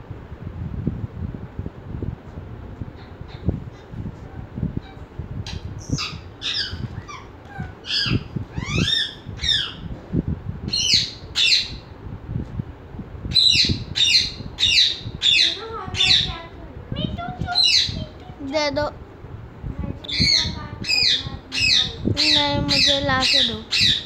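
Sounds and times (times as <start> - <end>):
bird chirping and squawking: 4.8 - 9.9, 10.7 - 11.8, 13.3 - 16.4, 17.5 - 18.1, 20.1 - 24.0.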